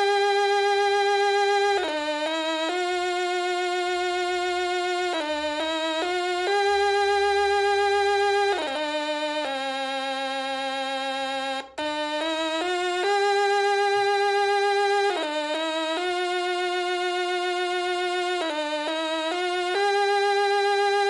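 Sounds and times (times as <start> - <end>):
stylophone melody: 5.2 - 9.3.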